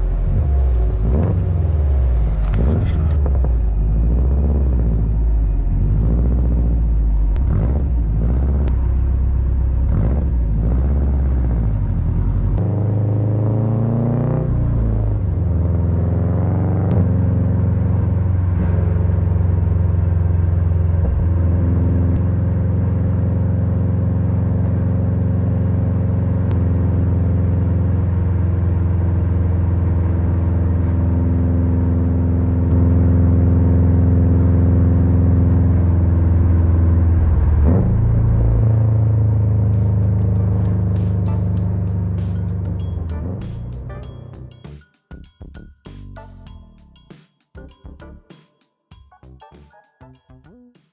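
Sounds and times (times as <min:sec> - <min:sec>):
car engine revving: 0:00.0 - 0:44.0.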